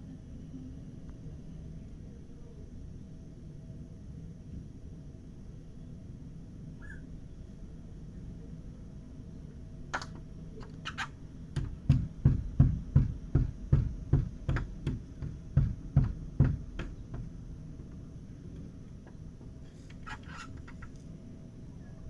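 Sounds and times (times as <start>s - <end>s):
sharp knocks with clicks: 9.9s - 18.0s.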